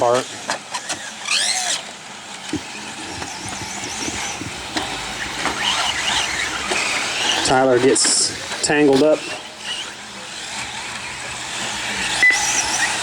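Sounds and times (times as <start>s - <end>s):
rc truck motors whining: 0.0s - 13.0s.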